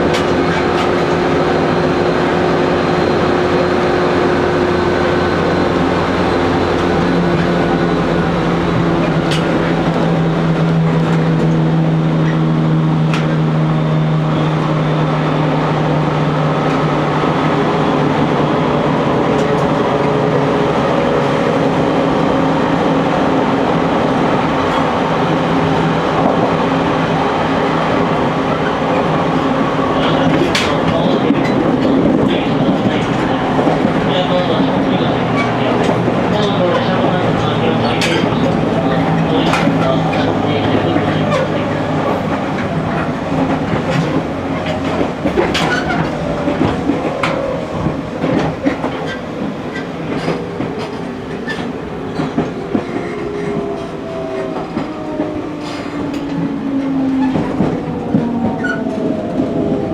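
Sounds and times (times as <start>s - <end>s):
wheel and rail noise: 0.0s - 59.9s
electric train motor hum: 29.8s - 59.9s.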